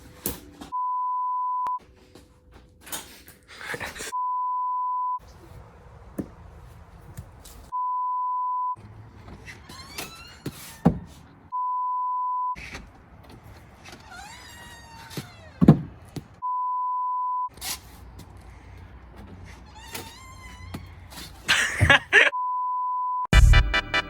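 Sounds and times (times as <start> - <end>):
censor bleep tone: 0.7 - 1.8, 4.2 - 5.2, 7.8 - 8.8, 11.6 - 12.6, 16.4 - 17.5, 22.4 - 23.3.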